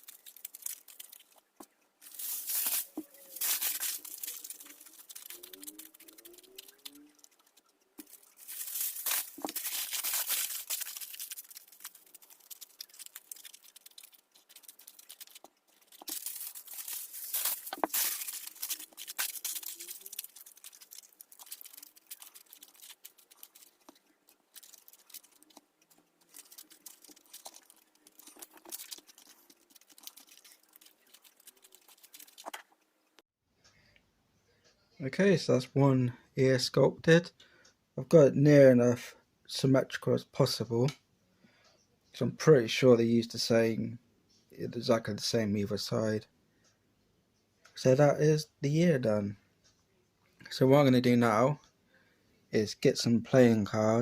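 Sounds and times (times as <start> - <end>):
aluminium foil crumpling: 0.0 - 32.8.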